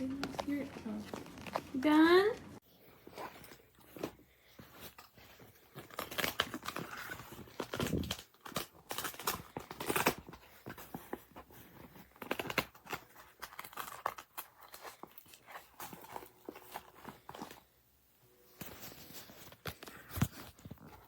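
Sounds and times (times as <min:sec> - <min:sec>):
rustling against fabric carrier: 0:00.0 - 0:17.7.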